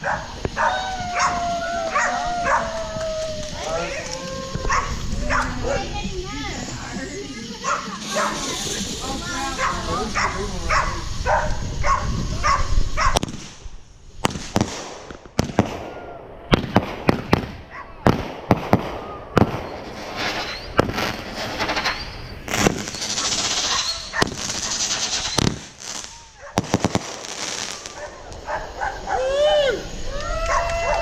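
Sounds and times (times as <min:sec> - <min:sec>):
dog barking: 0:00.0 - 0:01.3, 0:07.6 - 0:08.4, 0:09.6 - 0:13.2, 0:28.0 - 0:29.2
fireworks cracking and popping: 0:00.0 - 0:31.0
fireworks hissing: 0:00.0 - 0:31.0.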